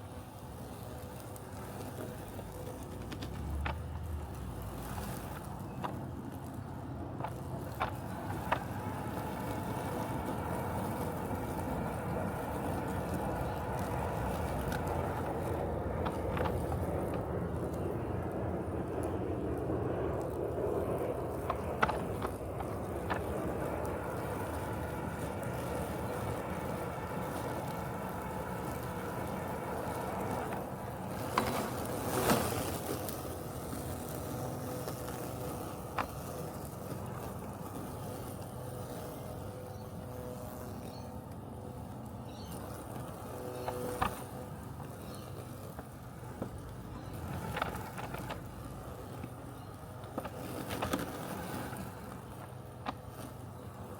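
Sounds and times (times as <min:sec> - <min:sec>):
robotic lawn mower humming: 0:00.0 - 0:53.9.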